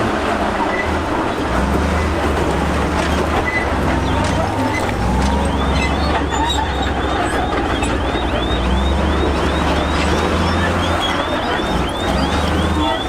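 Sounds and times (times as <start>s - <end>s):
heavy diesel machinery running: 0.0s - 13.0s
high repeating squeak: 3.1s - 13.0s.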